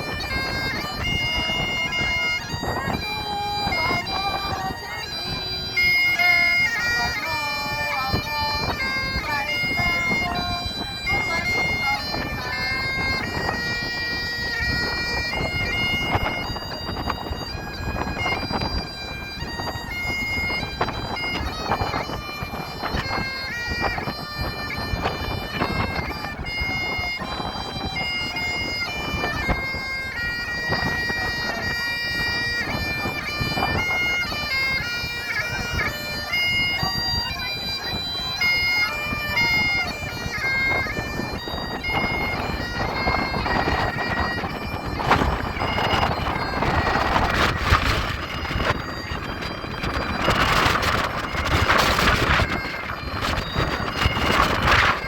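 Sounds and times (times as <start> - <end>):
bagpipes playing: 0.0 - 55.0
wind rumbling on microphone: 0.0 - 55.0.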